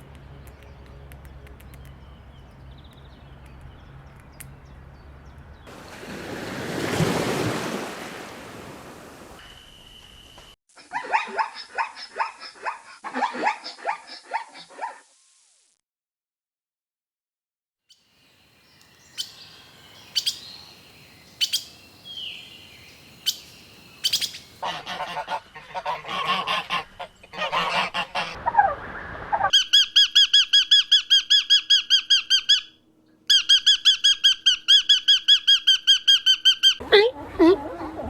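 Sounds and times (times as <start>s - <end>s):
sharp bird chirps: 18.7s - 24.6s.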